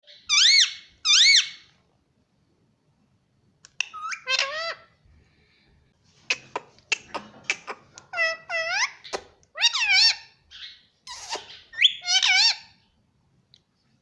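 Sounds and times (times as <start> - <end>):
parrot calling: 0.1 - 1.7, 3.8 - 5.0, 6.3 - 12.8.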